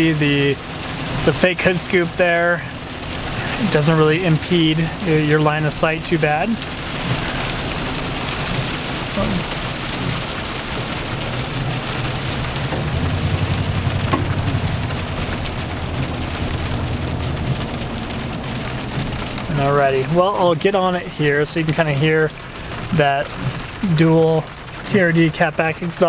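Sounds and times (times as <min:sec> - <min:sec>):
truck engine humming: 0:00.0 - 0:25.4
heavy rain on truck roof: 0:00.0 - 0:26.0.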